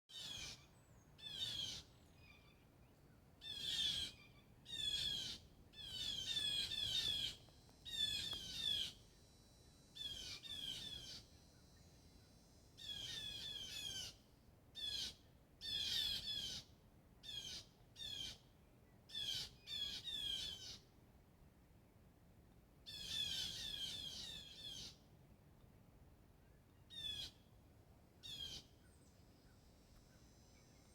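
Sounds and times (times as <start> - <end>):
birds calling with sliding notes: 3.5 - 9.3, 9.9 - 14.2.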